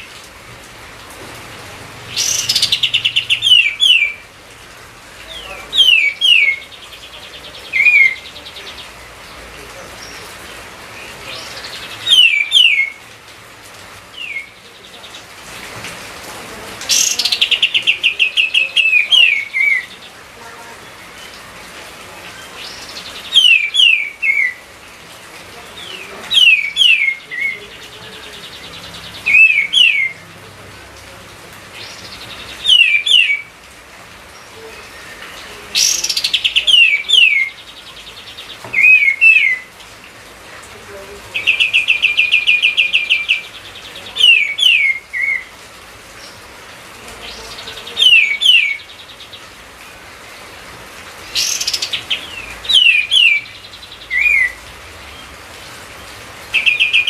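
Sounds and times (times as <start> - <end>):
songbird whistling: 12.1 - 13.0, 32.6 - 33.4.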